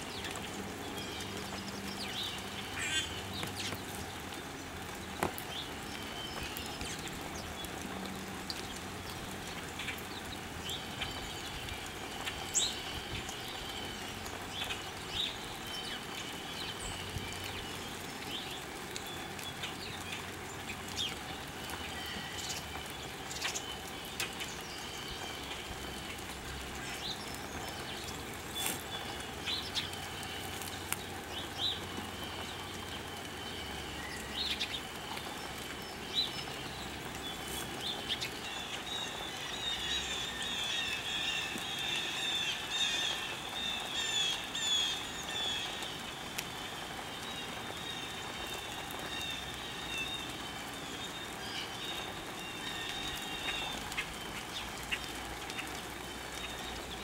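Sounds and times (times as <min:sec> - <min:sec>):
small birds chirping: 0:00.0 - 0:57.0
steady outdoor hiss: 0:00.0 - 0:57.0.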